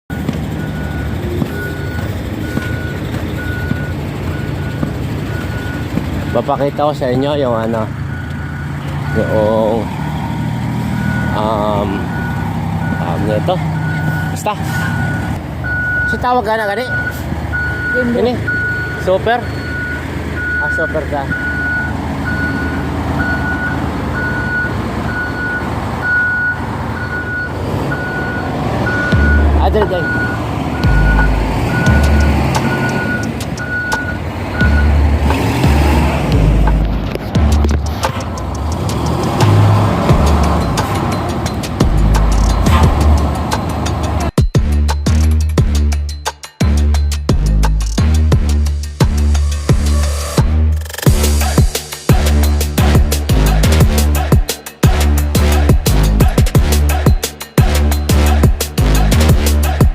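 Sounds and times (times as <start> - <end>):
reversing alarm beeping: 0.1 - 35.0
diesel engine running: 0.1 - 59.9.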